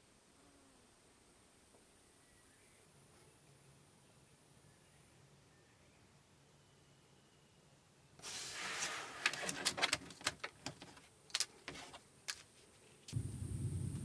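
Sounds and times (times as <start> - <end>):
rustle: 8.2 - 14.0.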